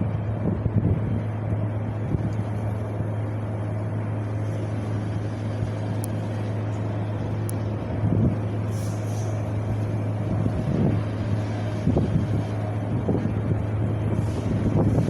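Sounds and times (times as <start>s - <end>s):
low hum: 0.0s - 15.0s
wind noise: 0.0s - 15.0s.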